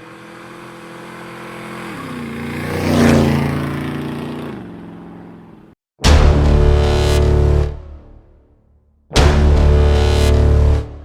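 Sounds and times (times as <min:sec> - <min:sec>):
motorcycle engine passing by: 0:00.0 - 0:05.8.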